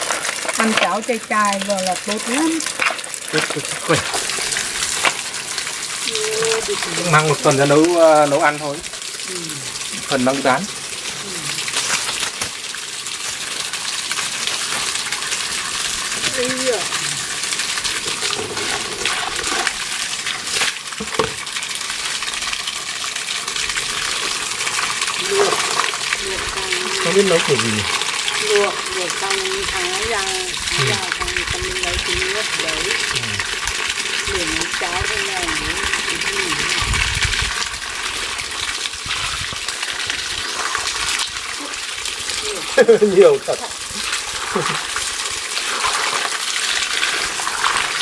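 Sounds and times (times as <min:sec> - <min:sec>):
mussel shells clattering: 0:00.0 - 0:03.8
water splashing and pouring: 0:00.0 - 0:48.0.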